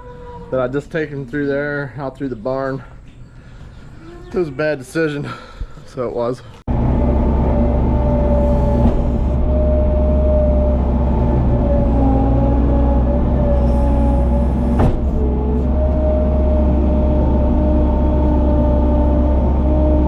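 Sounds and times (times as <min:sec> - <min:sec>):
engine whine: 0:06.7 - 0:20.0
loader engine running: 0:06.7 - 0:20.0.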